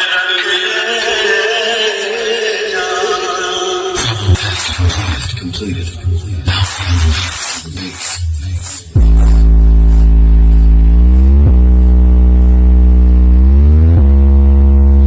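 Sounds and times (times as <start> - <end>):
heavy bass synth tone: 9.0 - 15.0.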